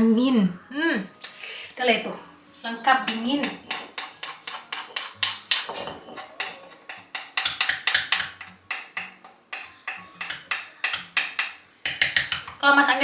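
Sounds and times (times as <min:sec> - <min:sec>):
pestle knocking in mortar: 0:03.0 - 0:12.6.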